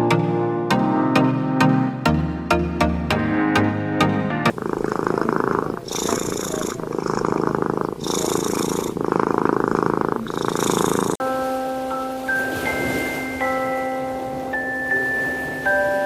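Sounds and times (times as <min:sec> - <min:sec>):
cat purring: 0:04.5 - 0:11.2
cat breathy hiss: 0:04.8 - 0:11.2.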